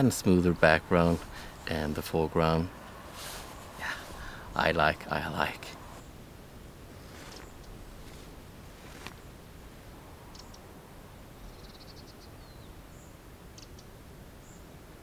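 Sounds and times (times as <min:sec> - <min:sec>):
songbirds chirping: 0:00.0 - 0:15.0
rapid bird ticks: 0:07.3 - 0:07.8, 0:10.3 - 0:10.7, 0:13.5 - 0:14.0.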